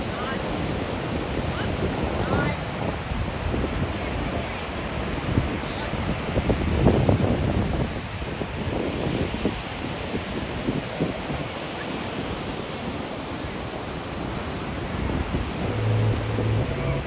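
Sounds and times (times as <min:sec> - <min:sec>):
ocean surf on beach: 0:00.0 - 0:17.0
wind buffeting microphone: 0:01.7 - 0:11.6
steady low hum: 0:14.6 - 0:17.0.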